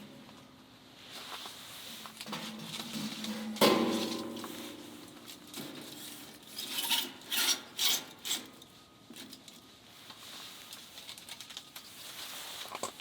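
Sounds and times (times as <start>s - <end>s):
handling and rubbing sounds: 1.0s - 6.4s, 9.9s - 13.0s.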